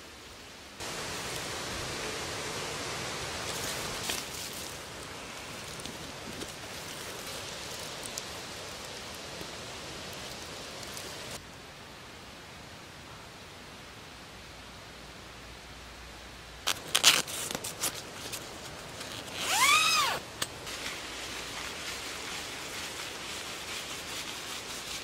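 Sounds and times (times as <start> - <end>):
steady rushing hiss: 0.0 - 25.0
dry leaves rustling: 0.8 - 11.4, 16.6 - 25.0.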